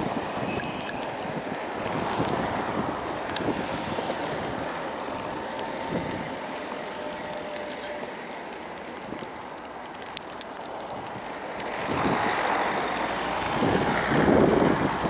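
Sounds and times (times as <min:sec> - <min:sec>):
wind on microphone: 0:00.0 - 0:06.4, 0:11.8 - 0:12.6, 0:13.4 - 0:15.0
dump truck passing: 0:10.6 - 0:15.0.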